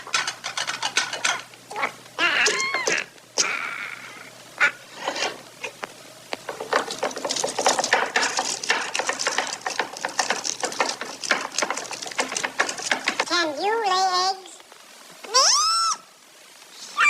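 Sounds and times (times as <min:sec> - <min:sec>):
bird pecking and tapping: 0:00.0 - 0:01.5, 0:06.3 - 0:13.3.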